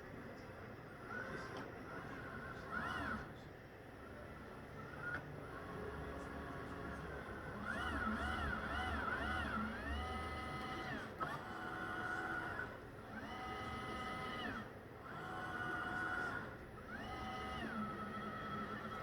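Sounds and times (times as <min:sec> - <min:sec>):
robot vacuum motors whining: 0:07.6 - 0:19.0.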